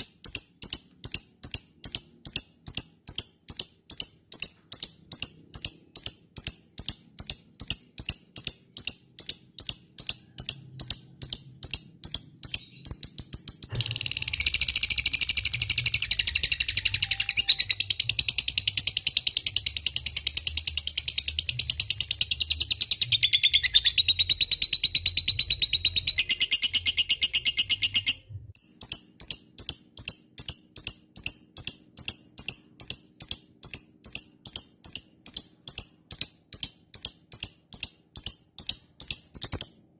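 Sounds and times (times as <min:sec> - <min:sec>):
lovebird chirping: 0:00.0 - 0:39.9
lovebird fast chatter: 0:13.8 - 0:17.6.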